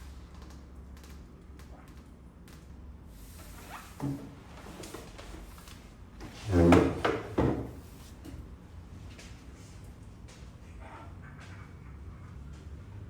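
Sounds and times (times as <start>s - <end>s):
drawer sliding: 3.4s - 7.9s.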